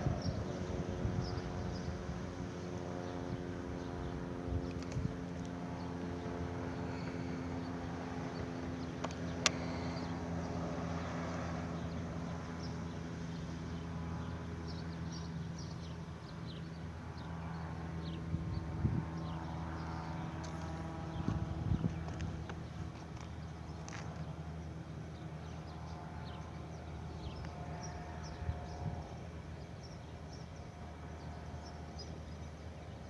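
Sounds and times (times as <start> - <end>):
steady mechanical hum: 0.0 - 33.0.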